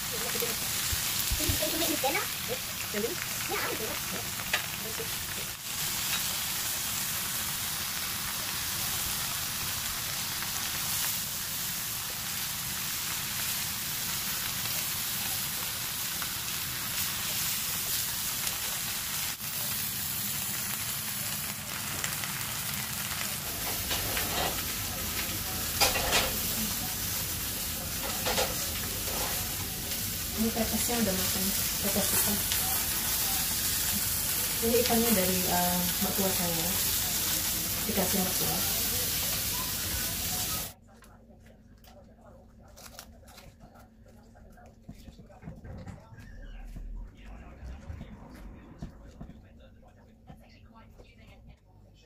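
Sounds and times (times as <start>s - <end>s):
food sizzling in a pan: 0.0s - 40.8s.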